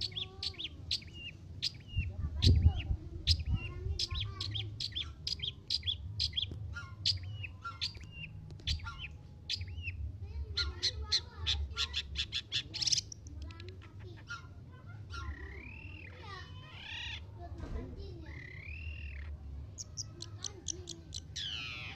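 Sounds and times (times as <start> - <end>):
shrike singing sharp chirps: 18.3 - 21.9.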